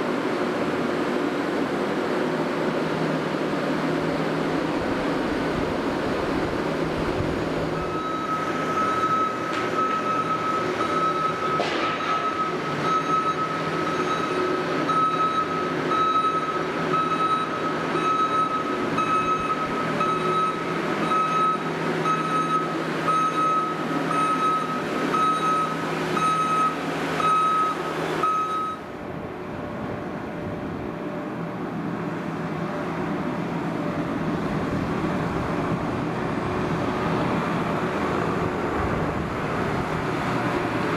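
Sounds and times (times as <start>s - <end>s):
loader diesel engine under load: 0.0s - 40.9s
reversing alarm beeping: 7.7s - 28.9s.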